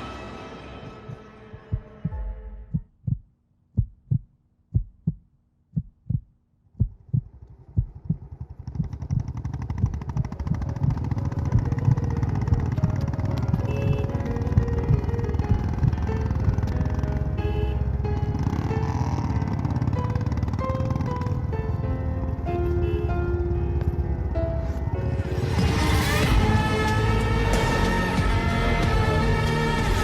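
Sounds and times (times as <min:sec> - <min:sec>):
music: 0:00.0 - 0:02.7, 0:10.4 - 0:30.0
heartbeat thumps: 0:00.9 - 0:16.7
low pulsing rumble: 0:05.8 - 0:16.6.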